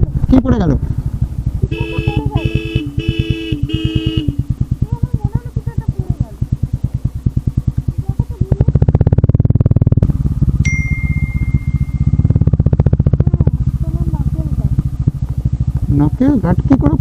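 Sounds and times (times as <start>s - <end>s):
motorcycle engine idling: 0.0s - 17.0s
multi-note horn: 1.7s - 4.6s
thin high beep: 10.6s - 12.4s.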